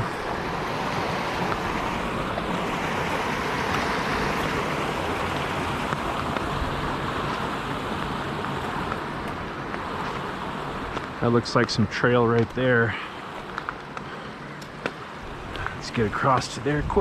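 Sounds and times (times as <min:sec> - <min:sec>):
creek water rushing over rocks: 0:00.0 - 0:17.0.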